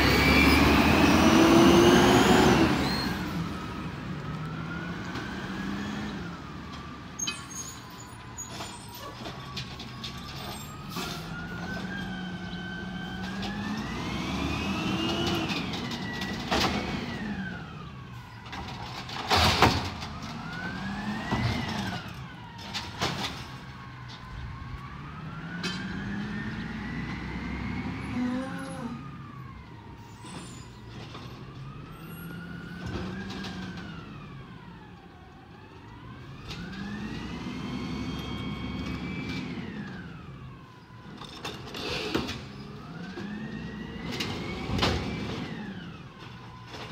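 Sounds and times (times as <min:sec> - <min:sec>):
truck engine revving: 0:00.0 - 0:06.5, 0:11.3 - 0:18.0, 0:20.1 - 0:22.4
loud bang of cart: 0:19.2 - 0:20.1.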